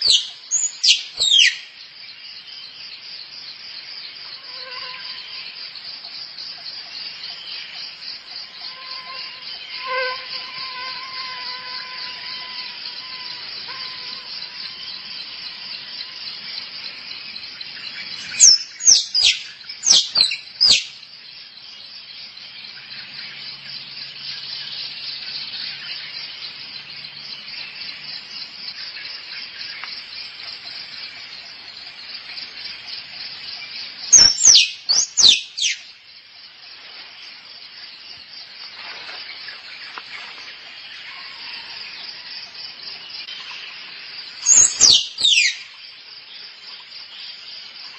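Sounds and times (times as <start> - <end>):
squirrel chirping: 0.0 - 1.6, 34.2 - 35.8, 44.5 - 45.6
insect chorus: 0.0 - 47.9.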